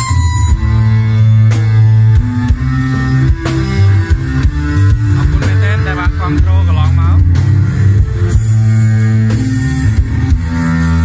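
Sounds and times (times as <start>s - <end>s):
bass line: 0.0s - 11.0s
dance band music: 0.0s - 11.0s
guitar: 0.0s - 11.0s.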